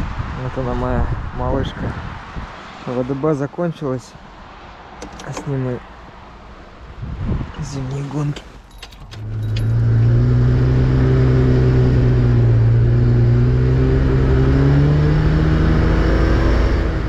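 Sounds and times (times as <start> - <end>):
car engine at high revs: 9.0 - 17.0.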